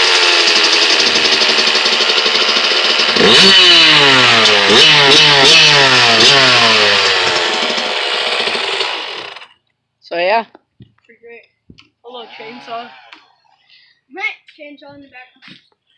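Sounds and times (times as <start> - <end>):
two-stroke engine revving: 0.0 - 9.6, 12.2 - 13.2.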